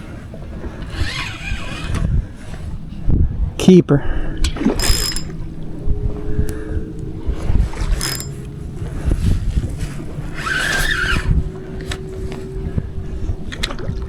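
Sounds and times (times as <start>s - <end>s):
wind rumble on microphone: 0.0s - 14.0s
brief high squeal: 10.4s - 11.3s.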